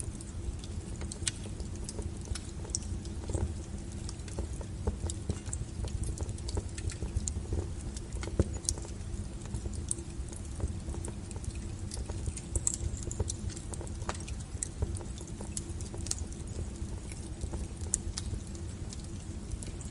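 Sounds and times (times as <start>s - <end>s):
low rumble of flames: 0.0s - 19.9s
wood fire crackling: 0.0s - 19.9s.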